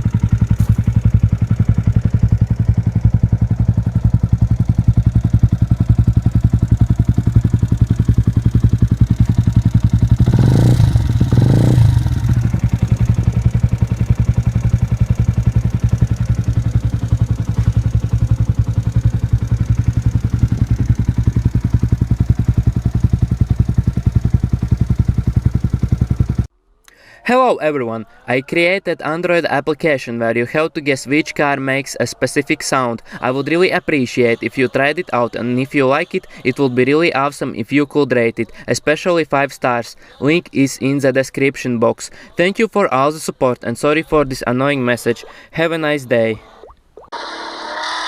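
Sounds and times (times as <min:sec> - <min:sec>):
motorcycle engine idling and revving: 0:00.0 - 0:26.5.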